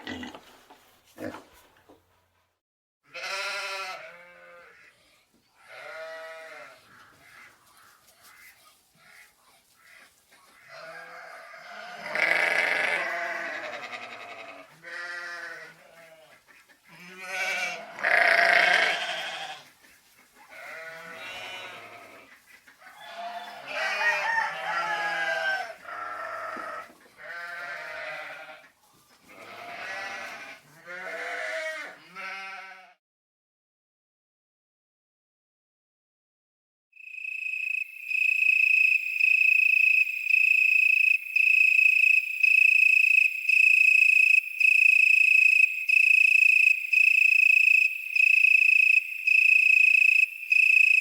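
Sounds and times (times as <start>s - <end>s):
farm animals bleating: 0.0s - 0.5s, 1.2s - 1.4s, 3.0s - 19.7s, 20.4s - 33.0s.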